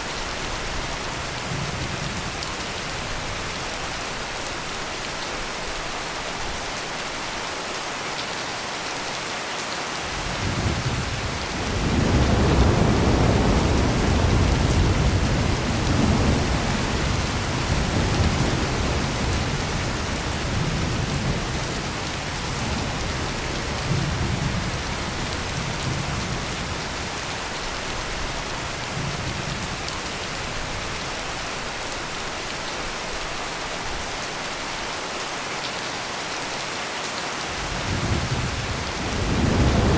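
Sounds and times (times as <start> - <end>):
heavy rain pouring: 0.0 - 39.9
thunder rumbling: 10.1 - 27.1, 37.6 - 39.9.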